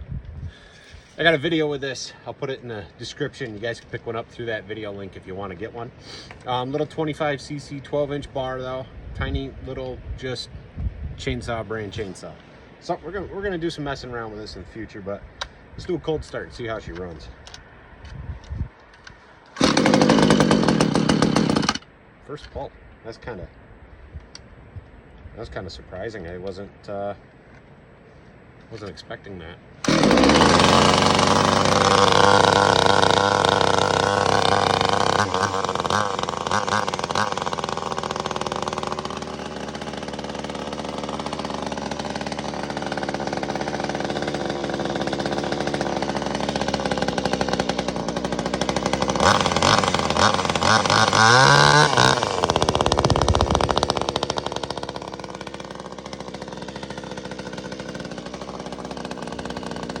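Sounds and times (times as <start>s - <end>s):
chainsaw engine running and revving: 19.6s - 21.8s, 29.8s - 60.0s.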